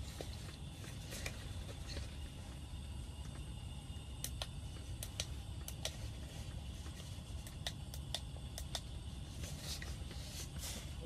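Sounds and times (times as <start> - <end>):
steady low rumble: 0.0 - 11.0
sharp light clicks: 4.2 - 6.0, 7.4 - 9.0.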